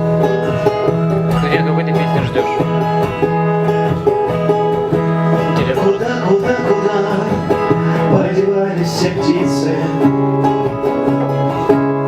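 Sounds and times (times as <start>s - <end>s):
plucked string instrument music: 0.0s - 12.0s.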